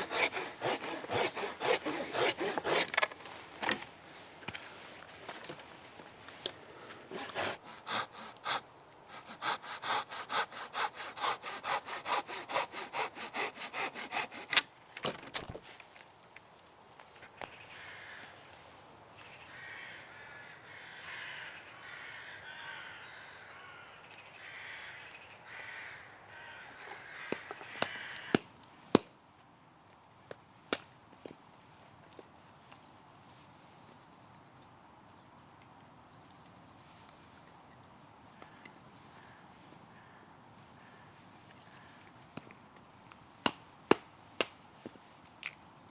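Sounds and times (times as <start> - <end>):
hand saw cutting wood: 0.0 - 3.2, 7.1 - 14.7.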